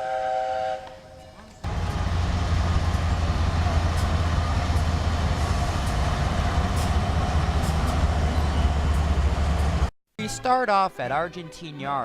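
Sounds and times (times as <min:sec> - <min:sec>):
train rumbling: 0:00.8 - 0:09.9.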